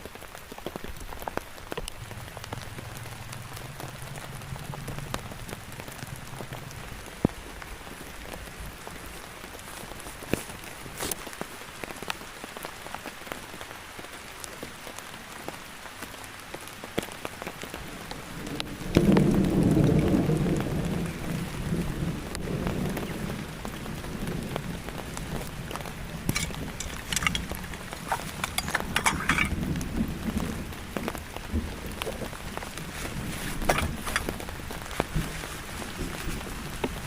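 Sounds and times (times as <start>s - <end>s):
heavy rain with ticking drops: 0.0s - 37.0s
low rumble of thunder: 1.9s - 8.8s, 18.3s - 37.0s.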